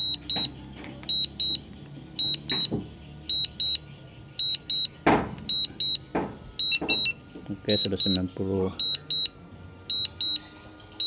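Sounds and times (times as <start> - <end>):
short high beeps in pairs: 1.1 - 1.6, 2.2 - 2.7, 3.3 - 4.9, 6.6 - 7.2, 8.8 - 9.3.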